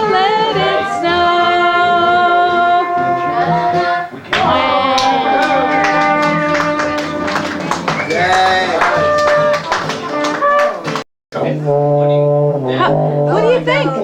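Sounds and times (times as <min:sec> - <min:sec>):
voices singing sustained notes: 0:00.0 - 0:08.4.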